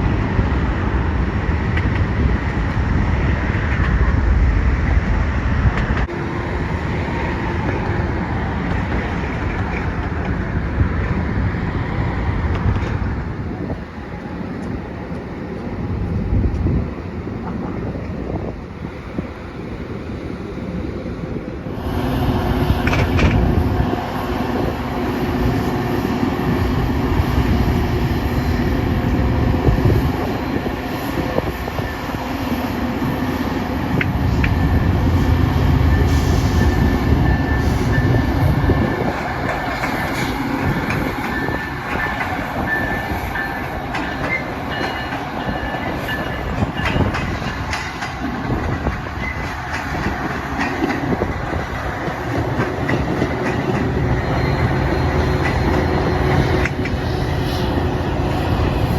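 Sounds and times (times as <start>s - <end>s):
train rumbling past: 0.0s - 58.9s
wheels clicking over track: 5.7s - 11.3s, 38.8s - 57.0s.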